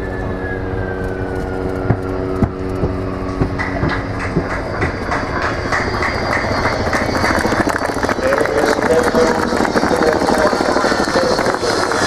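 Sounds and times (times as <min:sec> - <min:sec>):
jet engine whine: 0:00.0 - 0:12.0
rough jet roar: 0:00.0 - 0:12.0
sharp knocks: 0:01.8 - 0:08.1.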